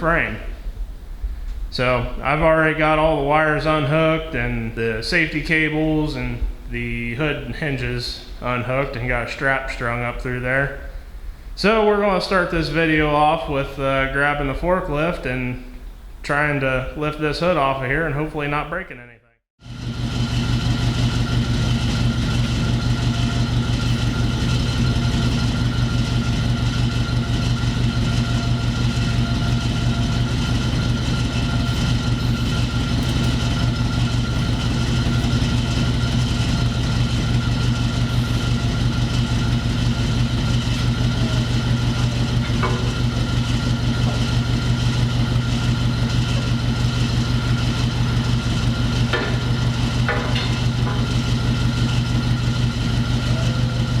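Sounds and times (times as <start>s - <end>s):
forklift engine idling: 19.6s - 54.0s.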